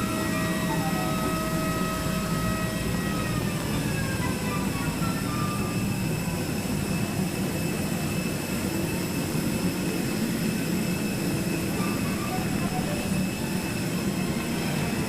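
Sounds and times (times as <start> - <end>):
jet engines idling: 0.0 - 15.0.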